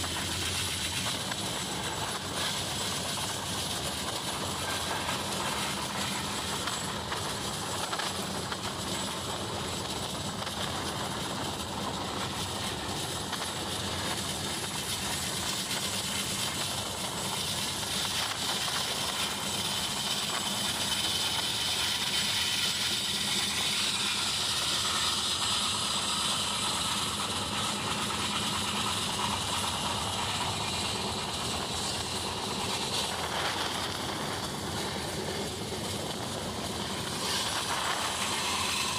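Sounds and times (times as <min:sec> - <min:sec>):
train wheels rumbling on rails: 0:00.0 - 0:38.9
rushing air: 0:16.2 - 0:38.9.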